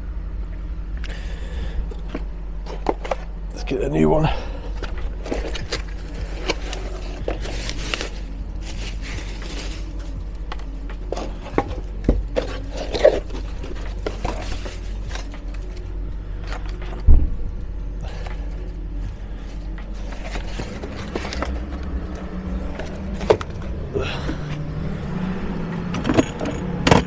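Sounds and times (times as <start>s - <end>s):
steady low hum: 0.0s - 27.0s
tools and parts scraping and rattling: 1.9s - 17.1s, 18.0s - 24.7s, 25.7s - 27.0s
heavy thud: 17.1s - 17.6s.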